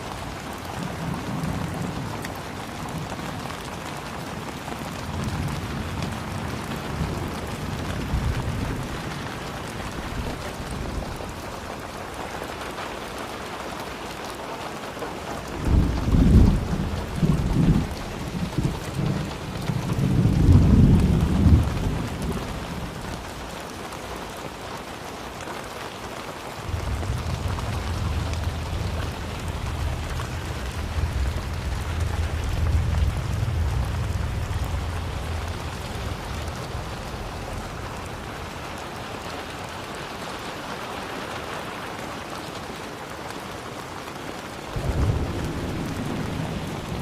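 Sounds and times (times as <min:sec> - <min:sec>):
thunder rumbling: 0:00.0 - 0:12.3, 0:15.4 - 0:23.6, 0:26.6 - 0:40.4, 0:44.7 - 0:47.0
steady rain falling: 0:00.0 - 0:47.0.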